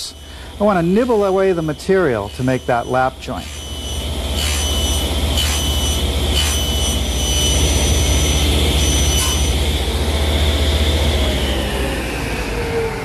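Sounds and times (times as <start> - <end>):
power saw whining: 0.0 - 13.0.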